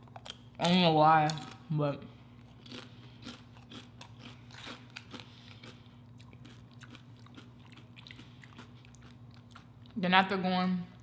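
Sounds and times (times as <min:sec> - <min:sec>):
low steady hum: 0:00.0 - 0:11.0
person crunching tortilla chips: 0:02.4 - 0:09.8.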